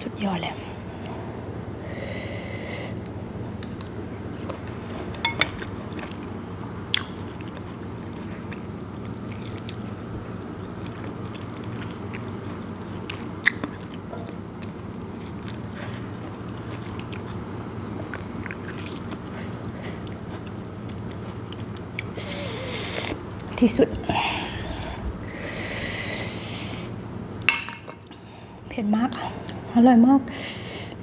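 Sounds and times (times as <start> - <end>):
steady low hum: 0.0 - 31.0
chewing and biting food: 3.8 - 23.6.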